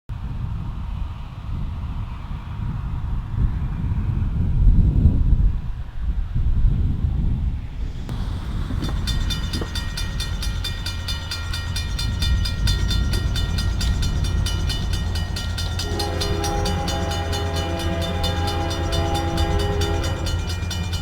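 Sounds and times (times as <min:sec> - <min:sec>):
locomotive rumble: 0:07.9 - 0:21.0
grade-crossing bell ringing: 0:08.1 - 0:21.0
locomotive air horn: 0:13.0 - 0:21.0.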